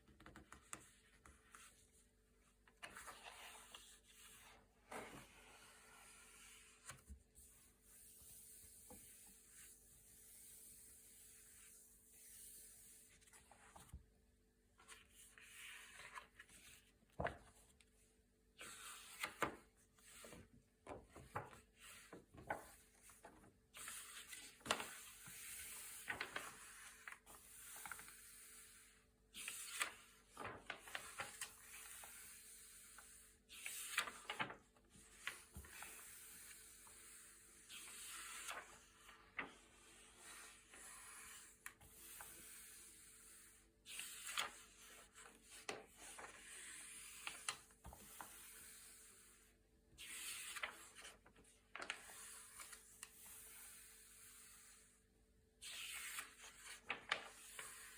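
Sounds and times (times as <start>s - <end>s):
glossy paper pages turning: 50.1s - 52.8s.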